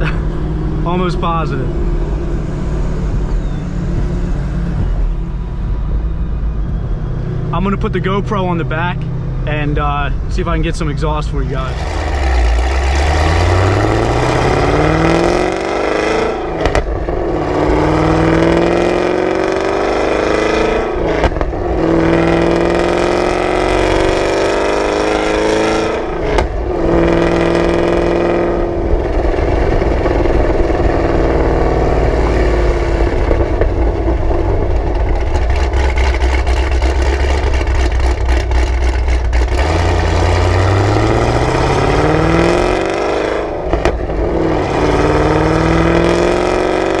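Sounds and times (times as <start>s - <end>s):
car engine accelerating: 0.0s - 47.0s
exhaust crackles and pops: 9.7s - 47.0s.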